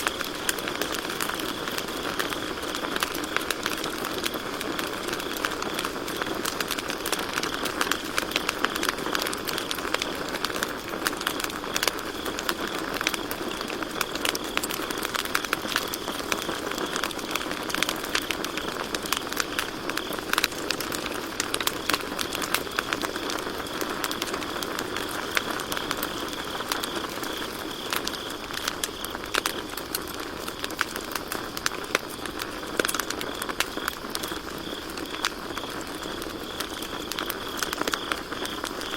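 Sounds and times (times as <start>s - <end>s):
campfire crackling: 0.0s - 38.9s
crickets chirping: 0.0s - 38.9s.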